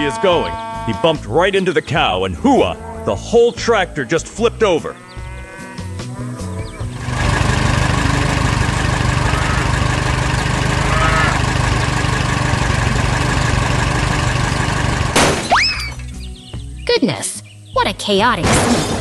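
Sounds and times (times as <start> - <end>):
tractor engine rumbling: 0.0 - 2.5, 6.1 - 16.8.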